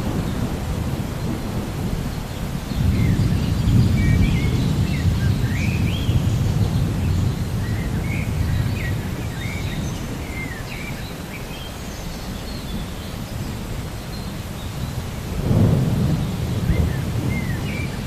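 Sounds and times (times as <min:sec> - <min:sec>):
low rolling thunder: 0:00.0 - 0:10.3, 0:15.0 - 0:18.0
birds chirping: 0:01.2 - 0:18.0.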